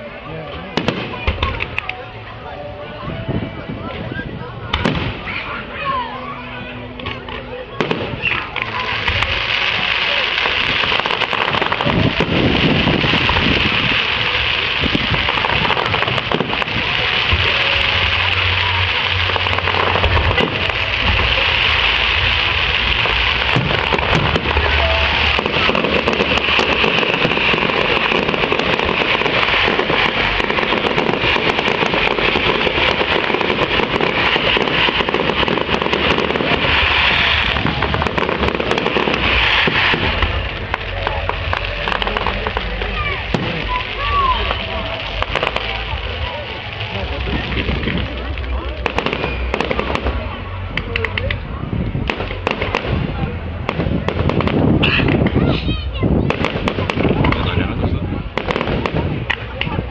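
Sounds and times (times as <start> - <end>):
fireworks crackling and popping: 0.0 - 59.9.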